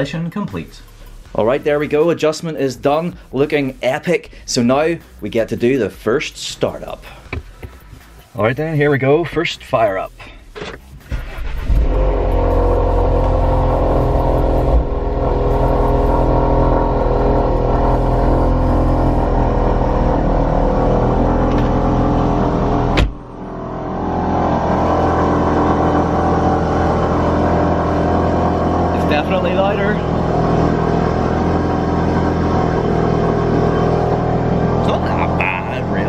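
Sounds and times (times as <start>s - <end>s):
car engine running: 10.4s - 36.0s.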